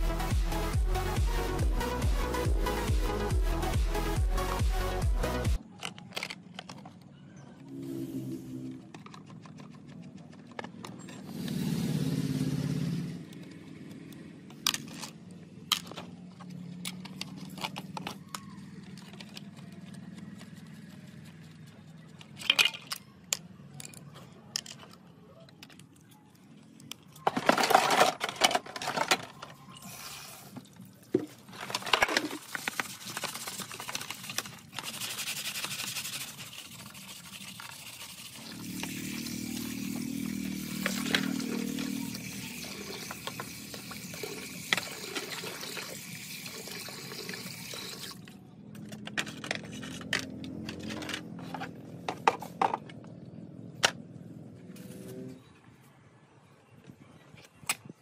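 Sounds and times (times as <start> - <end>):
metal parts clicking and scraping: 5.6 - 7.1, 13.3 - 46.1, 47.9 - 53.0.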